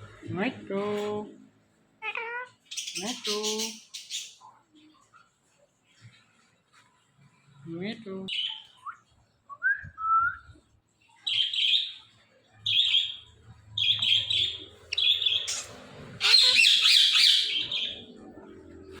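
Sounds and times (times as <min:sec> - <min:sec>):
parrot whistling and chirping: 0:13.8 - 0:18.0
parrot screech: 0:15.3 - 0:17.6.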